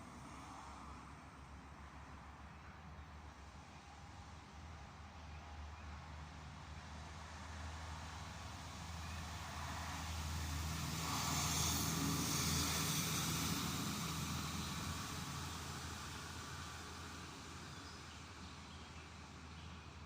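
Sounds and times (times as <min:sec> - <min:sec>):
vehicle passing by: 0:08.9 - 0:17.5.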